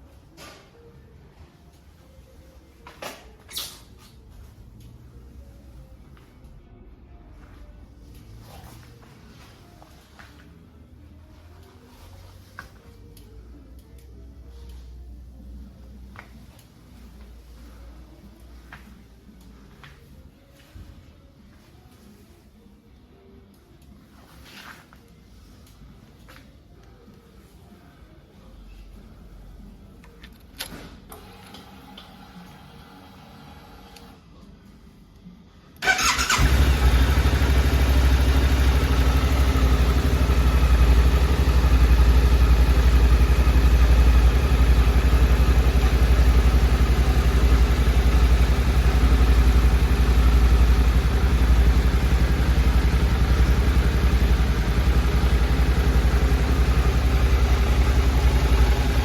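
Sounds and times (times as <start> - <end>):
motorcycle engine starting and idling: 35.8 - 59.0.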